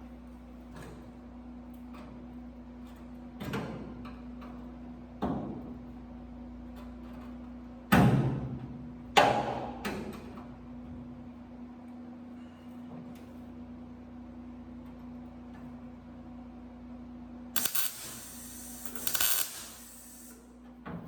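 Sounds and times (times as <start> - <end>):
steady low hum: 17.6 - 20.4.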